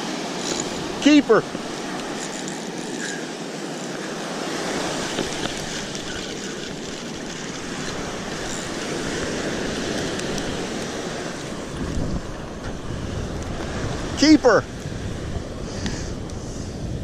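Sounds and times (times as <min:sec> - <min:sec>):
ocean surf washing onto beach: 0:00.0 - 0:17.0
wind on microphone: 0:03.9 - 0:17.0.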